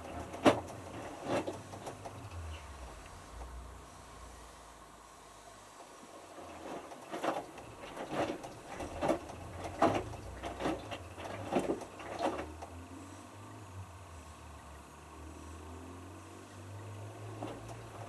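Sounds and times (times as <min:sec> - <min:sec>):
water and clothes sloshing: 0:00.0 - 0:02.2, 0:06.1 - 0:12.5, 0:17.2 - 0:18.0
washing machine drum tumbling: 0:00.0 - 0:02.3, 0:06.3 - 0:12.5.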